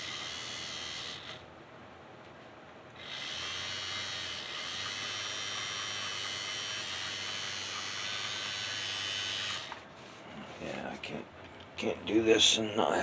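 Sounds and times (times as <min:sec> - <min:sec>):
model train motor whining: 0:00.0 - 0:01.5, 0:03.0 - 0:09.8.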